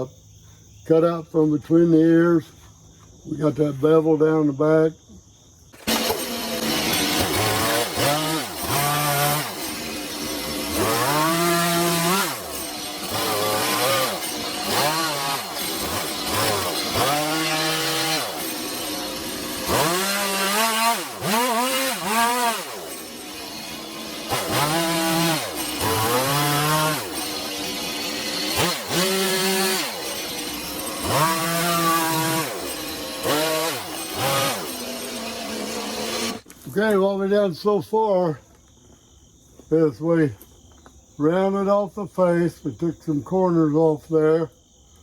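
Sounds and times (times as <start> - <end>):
chainsaw revving cutting wood: 5.8 - 37.0.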